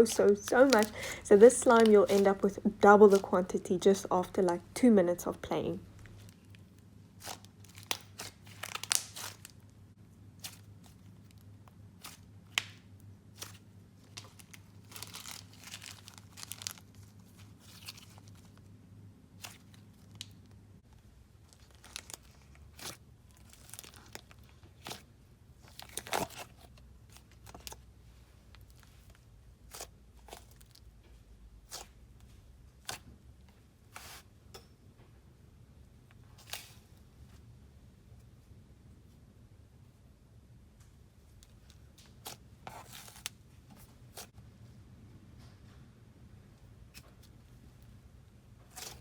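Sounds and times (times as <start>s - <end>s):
slime squishing with pops: 6.0s - 9.6s.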